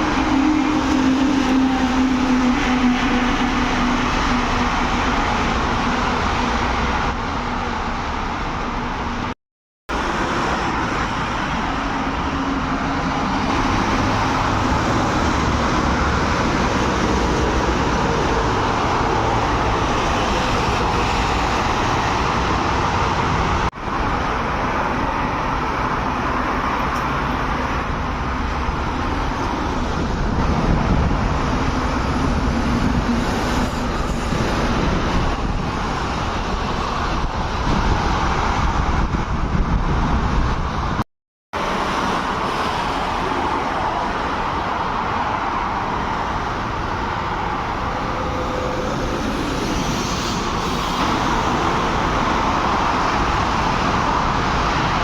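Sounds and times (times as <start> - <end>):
road traffic: 0.0 - 55.0.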